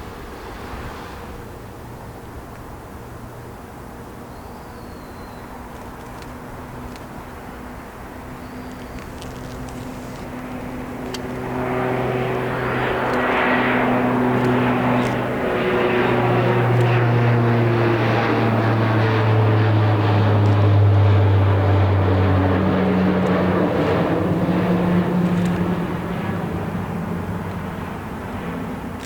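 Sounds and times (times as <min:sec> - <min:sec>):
airliner passing overhead: 0:00.0 - 0:29.0.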